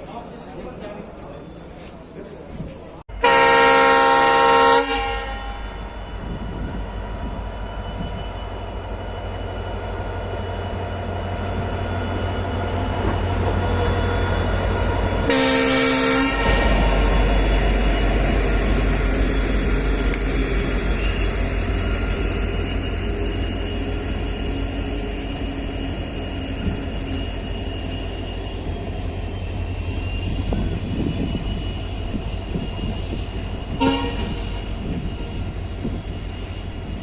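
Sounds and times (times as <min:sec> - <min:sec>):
train rumbling on track: 0:00.0 - 0:37.0
train horn blast: 0:03.2 - 0:05.8, 0:15.3 - 0:16.9, 0:33.7 - 0:34.7.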